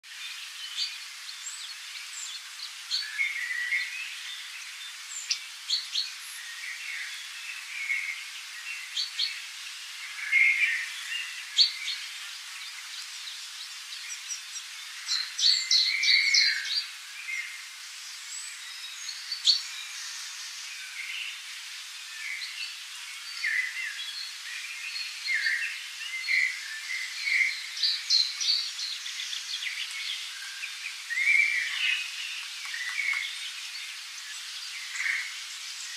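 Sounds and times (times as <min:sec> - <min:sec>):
faint steady hiss: 0:00.1 - 0:35.9
birds chirping: 0:22.1 - 0:35.9.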